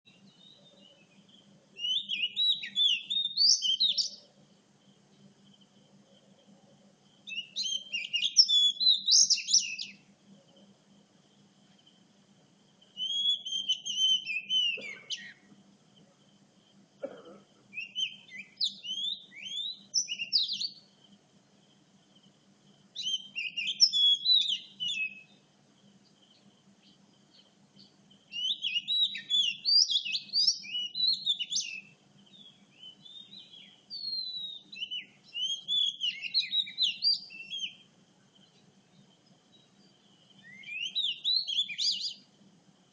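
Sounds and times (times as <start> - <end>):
magpie-robin whistled song: 0.1 - 4.3, 7.2 - 10.0, 13.0 - 15.5, 17.7 - 20.9, 23.0 - 25.4, 27.3 - 37.9, 39.5 - 42.3
faint low hum: 3.1 - 8.2, 8.9 - 23.6, 24.5 - 42.9.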